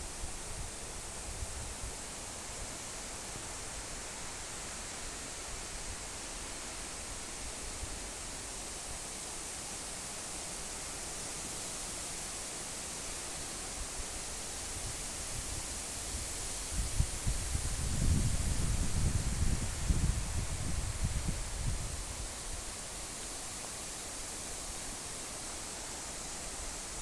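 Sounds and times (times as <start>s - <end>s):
wind through trees: 0.0s - 27.0s
wind gusts on microphone: 14.8s - 22.7s.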